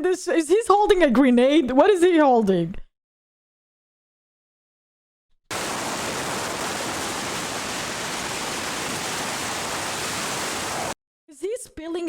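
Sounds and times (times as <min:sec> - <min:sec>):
steady rushing noise: 0:05.5 - 0:11.0.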